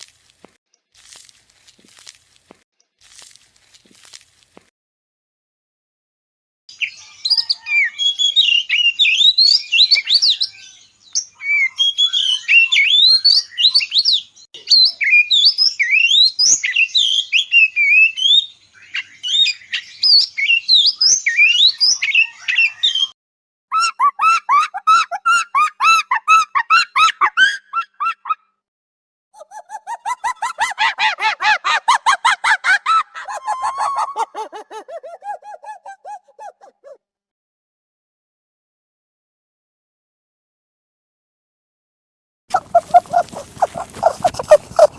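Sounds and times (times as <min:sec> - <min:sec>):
birds chirping and squawking: 0:33.2 - 0:37.0, 0:42.5 - 0:44.9
low repeated animal call: 0:42.5 - 0:44.9.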